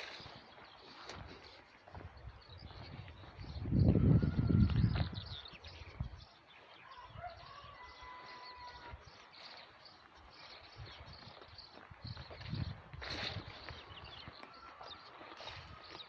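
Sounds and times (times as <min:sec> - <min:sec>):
small birds chirping: 0:00.0 - 0:16.0
low rumble on microphone: 0:02.0 - 0:06.2.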